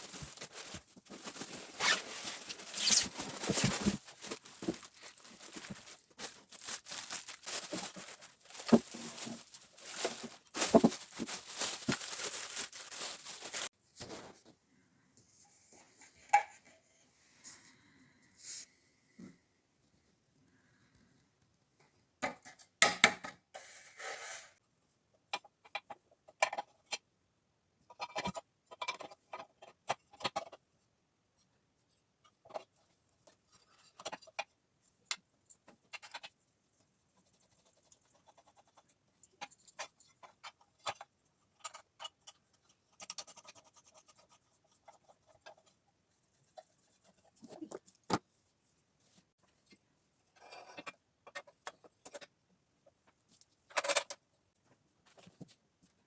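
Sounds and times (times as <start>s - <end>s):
packaging rustling: 0.0s - 13.7s
clicks and knocks of handling parts: 27.9s - 30.7s, 32.2s - 36.4s, 49.4s - 55.6s.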